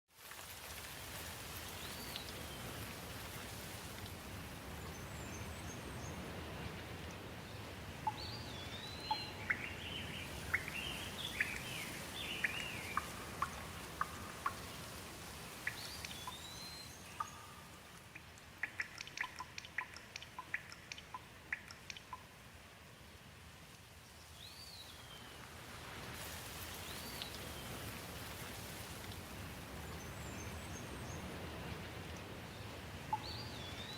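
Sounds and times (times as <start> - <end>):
low background noise: 0.1 - 33.9
whistled bird calls: 8.0 - 14.6
birds chirping: 8.0 - 15.0, 15.6 - 17.8
small sharp clicks: 17.2 - 22.2.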